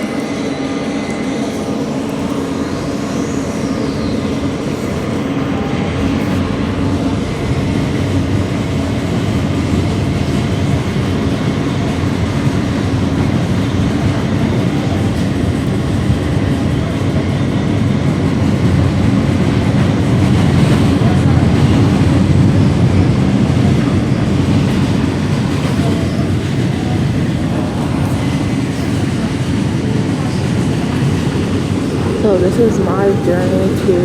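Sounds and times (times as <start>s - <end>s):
thin high whine: 0.0s - 8.6s
subway train rumbling: 0.0s - 34.0s.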